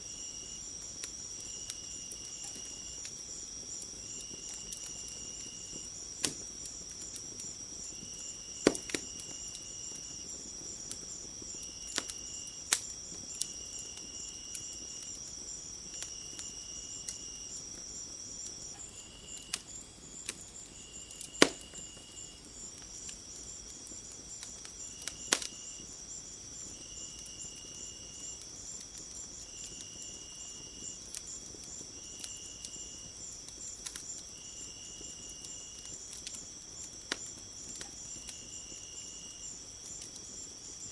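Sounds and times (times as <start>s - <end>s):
crickets trilling: 0.0s - 40.9s
insect chirping: 0.0s - 40.9s
wood fire popping and crackling: 0.0s - 40.9s.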